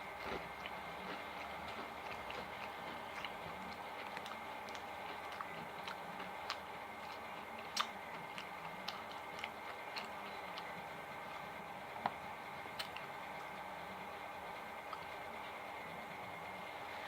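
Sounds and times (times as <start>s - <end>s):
faint hum: 0.0s - 17.0s
chewing: 0.1s - 13.6s, 14.8s - 15.6s
sharp wet mouth clicks: 7.7s - 10.1s.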